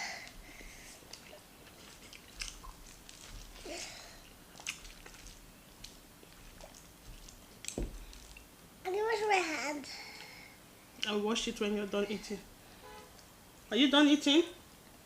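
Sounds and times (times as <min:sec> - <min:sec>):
chewing food: 0:00.2 - 0:08.5
wet mouth clicks and smacks: 0:01.1 - 0:03.6, 0:04.6 - 0:08.5.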